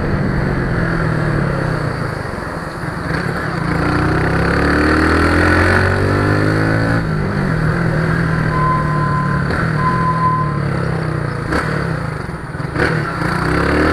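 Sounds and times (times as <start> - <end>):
vehicle engine running: 7.0 - 12.8
short high beeps: 8.5 - 10.9.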